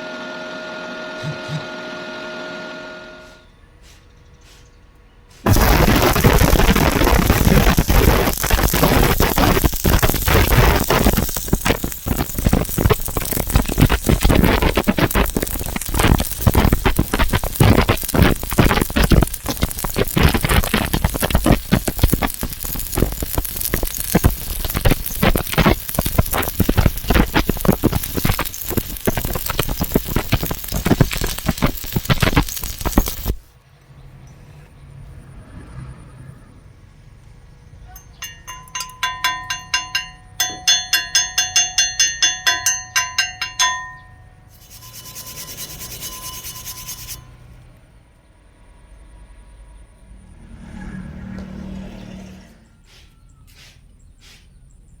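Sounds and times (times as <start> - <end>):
welding arc crackling: 5.4 - 33.6, 38.0 - 47.5
hammer striking steel: 37.9 - 47.4
scraping on metal: 38.0 - 47.5.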